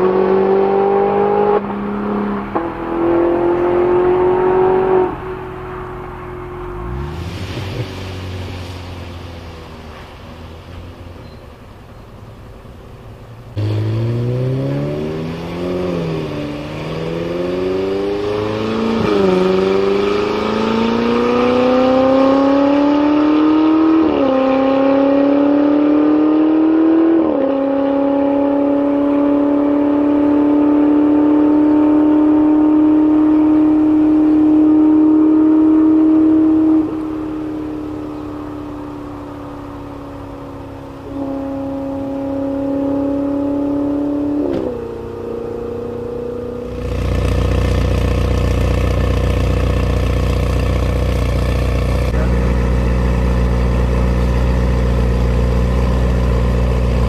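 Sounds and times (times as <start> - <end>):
sports car engine accelerating: 0.0 - 57.0.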